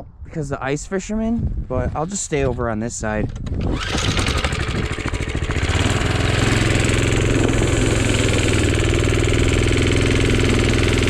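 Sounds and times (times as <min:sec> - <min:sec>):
small engine revving: 0:03.6 - 0:11.0.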